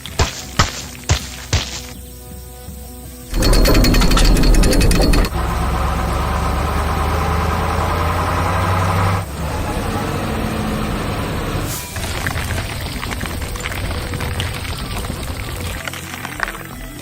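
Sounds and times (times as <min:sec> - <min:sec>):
heavy machinery engine idling: 0:03.3 - 0:15.8.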